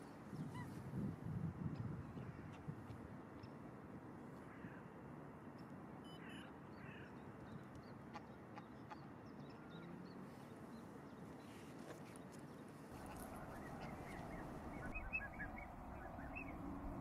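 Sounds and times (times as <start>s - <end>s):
quiet bird calls: 6.1s - 17.0s.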